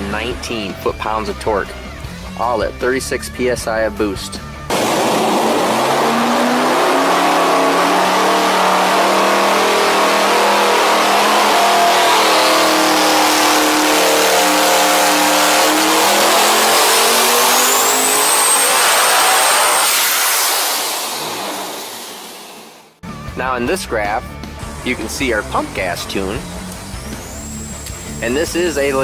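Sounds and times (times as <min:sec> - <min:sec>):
thin high whine: 0:04.7 - 0:22.8, 0:24.7 - 0:29.0
engine revving on dyno: 0:04.7 - 0:23.0, 0:24.6 - 0:29.0.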